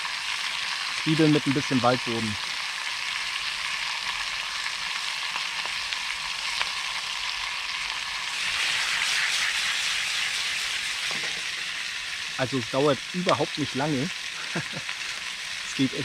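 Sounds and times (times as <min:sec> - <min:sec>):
burgers sizzling in oil: 0:00.0 - 0:16.0.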